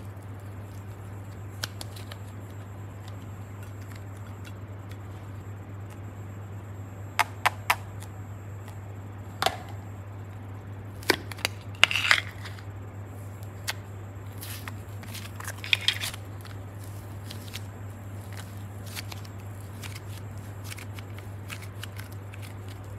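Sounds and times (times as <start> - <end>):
slime squishing: 0.0 - 5.4, 13.4 - 22.9
faint low hum: 0.0 - 22.9.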